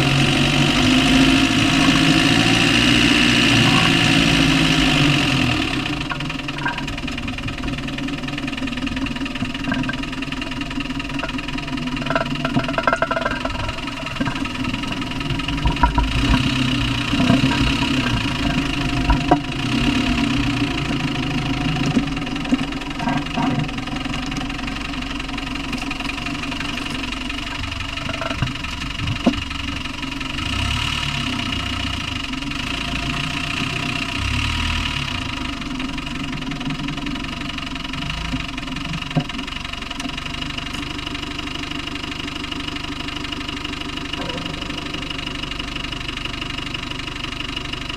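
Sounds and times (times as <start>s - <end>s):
diesel engine running: 0.0s - 47.9s
sharp engine knocks: 2.7s - 30.4s, 42.7s - 47.9s.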